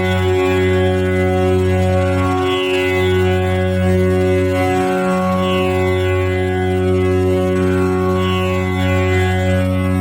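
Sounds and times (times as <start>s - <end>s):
tanpura drone: 0.0s - 10.0s.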